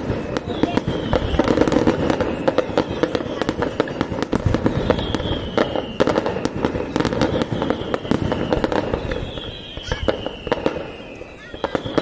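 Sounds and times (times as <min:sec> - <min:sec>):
fireworks bangs and crackles: 0:00.0 - 0:12.0
high descending whistle: 0:04.6 - 0:12.0.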